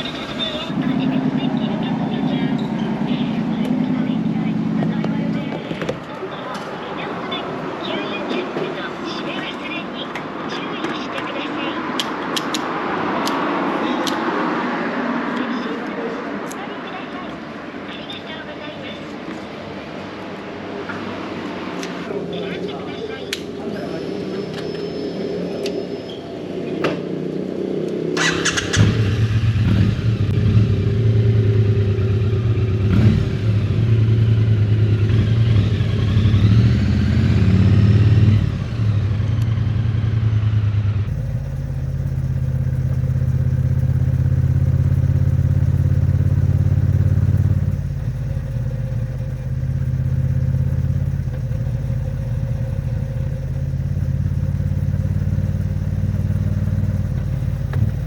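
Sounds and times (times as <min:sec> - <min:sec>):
motorcycle engine running: 0:00.0 - 0:06.0, 0:28.2 - 0:58.0.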